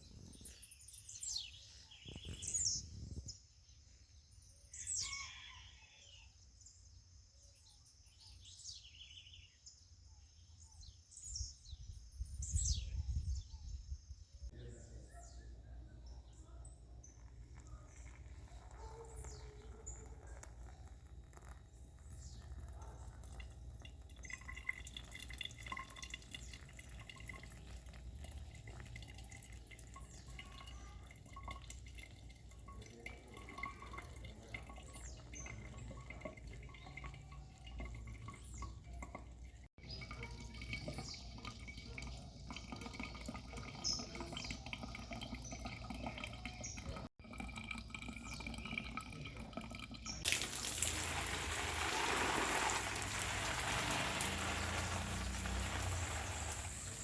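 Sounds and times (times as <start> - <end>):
water dripping: 17.0 - 57.0
rain hiss: 50.3 - 57.0.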